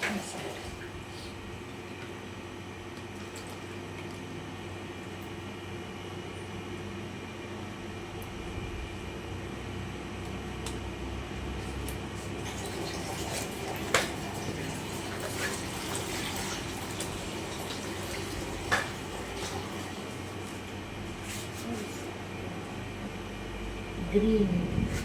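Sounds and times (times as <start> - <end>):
water splashing while washing vegetables: 0.0 - 1.4, 11.8 - 20.7.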